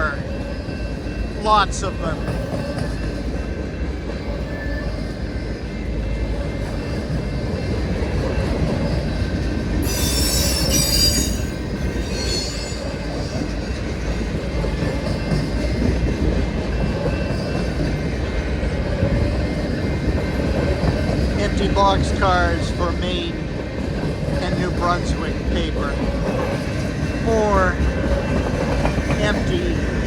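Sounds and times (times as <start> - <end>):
freight train rolling past: 0.0 - 30.0
train wheel squealing: 2.2 - 22.6.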